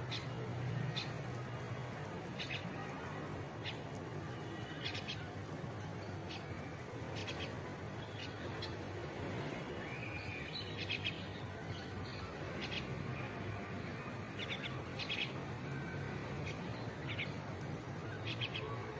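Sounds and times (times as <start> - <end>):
small birds chirping: 2.3 - 2.9, 4.6 - 5.3, 6.1 - 8.9, 9.8 - 18.8.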